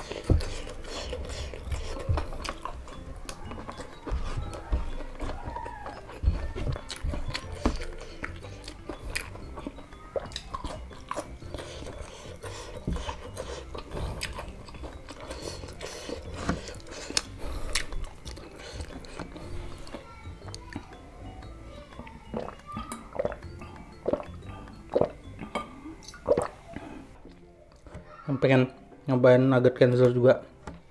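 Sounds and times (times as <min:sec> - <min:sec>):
person chewing crispy food: 0:00.0 - 0:21.0, 0:22.0 - 0:27.9.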